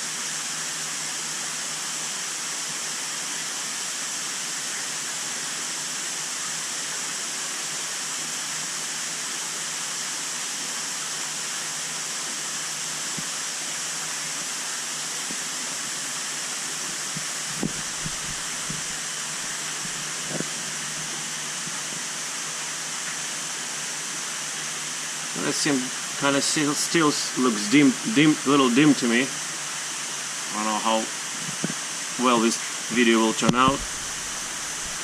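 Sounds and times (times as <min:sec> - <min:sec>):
rushing water: 0:00.0 - 0:35.0
low steady hum: 0:16.6 - 0:35.0.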